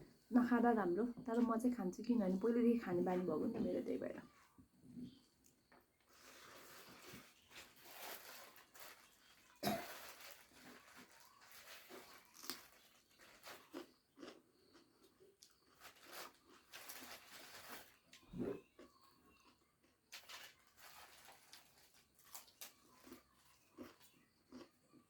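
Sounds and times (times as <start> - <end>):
person chewing and crunching food: 5.4 - 25.0.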